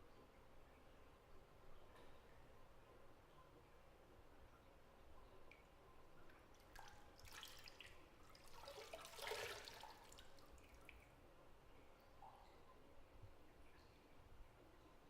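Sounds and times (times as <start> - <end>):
faint water drips: 0.0 - 15.0
bathwater sloshing and splashing: 6.6 - 11.0.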